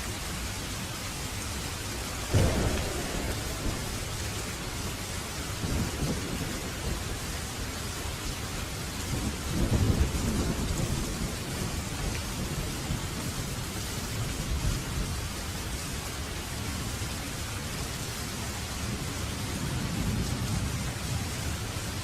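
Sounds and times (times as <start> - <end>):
steady rain hiss: 0.0 - 22.0
sudden thunderclap: 2.3 - 7.6
rolling thunder: 2.3 - 13.7.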